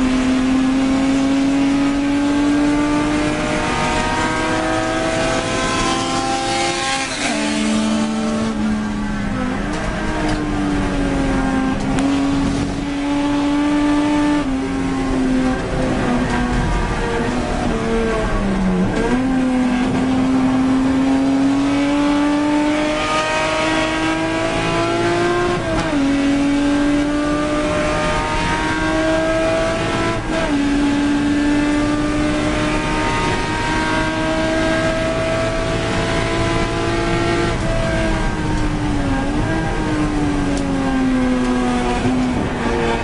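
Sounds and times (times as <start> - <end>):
race car engine at full throttle: 0.0 - 43.0.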